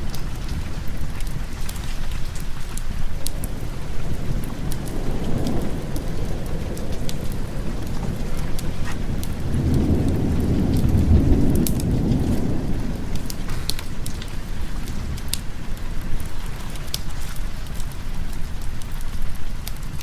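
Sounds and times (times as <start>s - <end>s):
low roll of thunder: 0.0s - 20.0s
steady rain: 0.0s - 20.0s
scattered sharp ticks: 13.1s - 14.4s.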